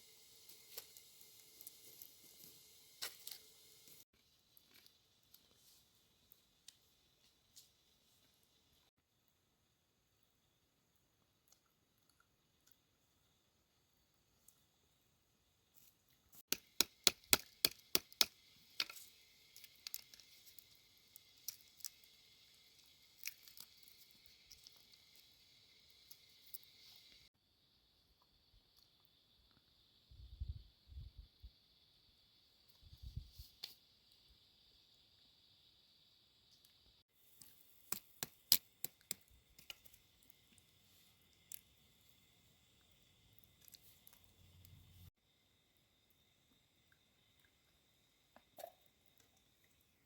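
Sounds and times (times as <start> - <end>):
high-pitched hiss: 0.0 - 4.1, 17.5 - 48.8.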